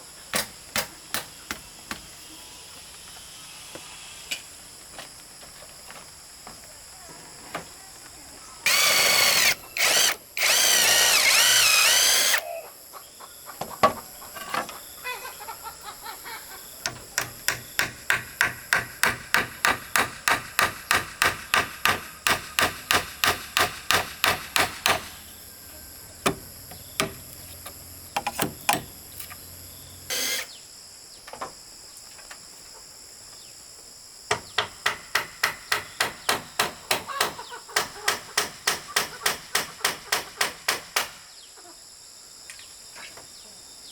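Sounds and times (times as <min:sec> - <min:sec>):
hammering on wood: 0:16.8 - 0:25.1, 0:34.3 - 0:41.2.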